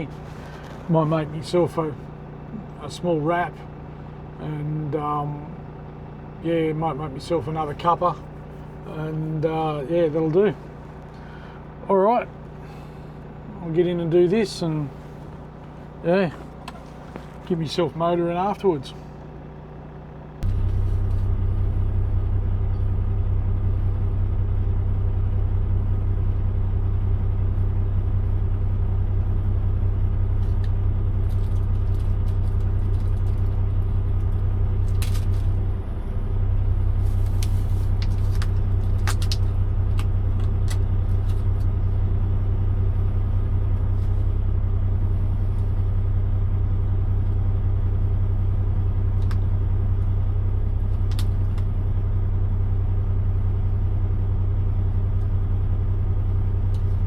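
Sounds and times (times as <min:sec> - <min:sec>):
low hum in truck cab: 0:00.0 - 0:57.0.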